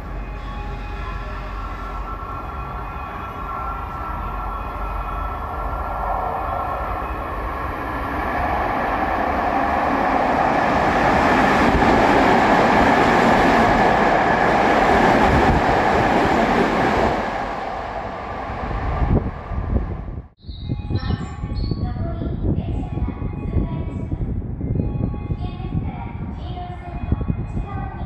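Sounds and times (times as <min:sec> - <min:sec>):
electric train passing at speed: 0:00.0 - 0:20.9.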